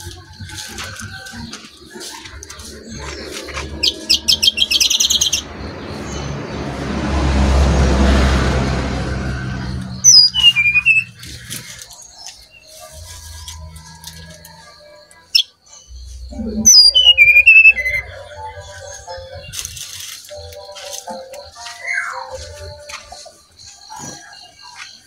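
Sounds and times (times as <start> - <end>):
bird singing: 0.0 - 8.2, 8.9 - 25.0
high chirps: 0.0 - 8.2, 8.9 - 25.0
rushing noise: 2.2 - 11.9
whistled notes falling in pitch: 9.0 - 24.7.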